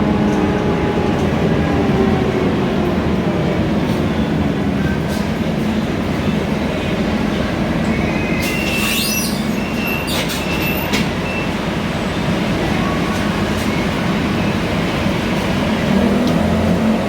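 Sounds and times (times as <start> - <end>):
bus engine and road rumble: 0.0 - 17.0
brief high squeaks: 8.1 - 11.5.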